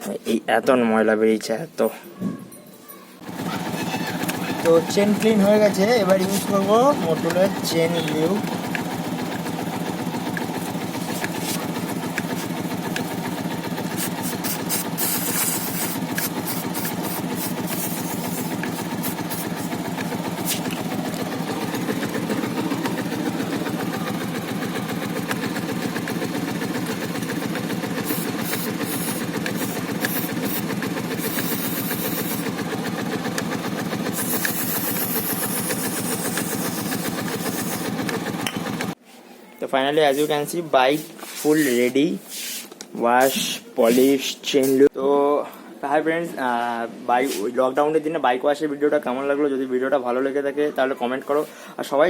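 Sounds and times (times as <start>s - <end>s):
motorcycle engine idling: 3.2s - 39.0s
aerosol spray hissing: 13.8s - 20.8s, 28.0s - 32.5s, 34.1s - 38.0s.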